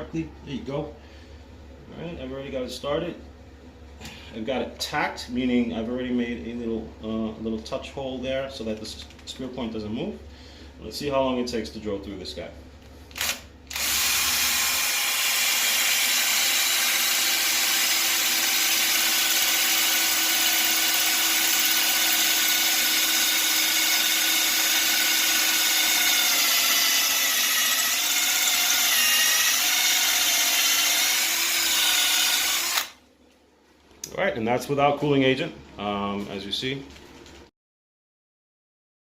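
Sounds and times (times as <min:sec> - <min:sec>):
power drill grinding through marble: 0:13.2 - 0:33.0.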